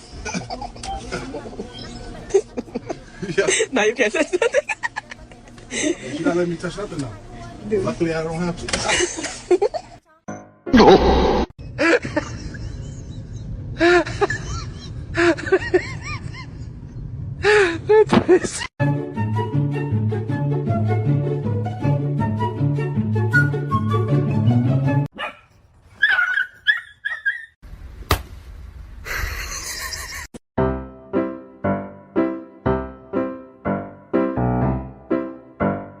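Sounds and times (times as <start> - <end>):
steady low rumble: 12.1 - 18.0
piano-like keyboard notes: 30.6 - 36.0.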